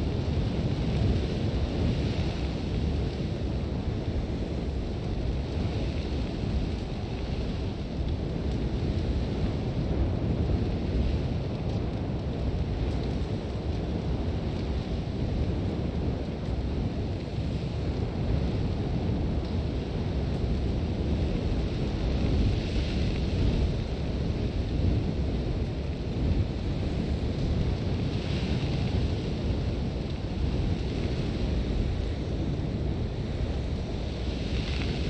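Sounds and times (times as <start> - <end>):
strong wind rumbling: 0.0 - 35.0
hiss of blown sand: 33.7 - 35.0.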